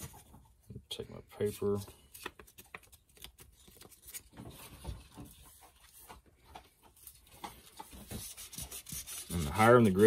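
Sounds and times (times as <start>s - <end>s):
sandpaper rubbing on wood: 8.1s - 10.0s.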